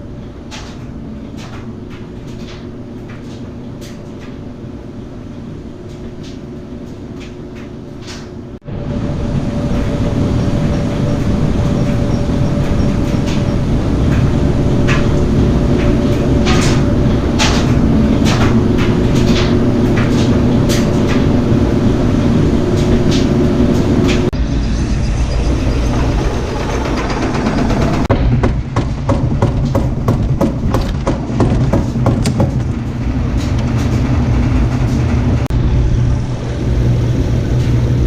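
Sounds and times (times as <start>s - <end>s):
sharp clicks and knocks: 26.5s - 35.5s
hissy rumble: 32.6s - 38.0s.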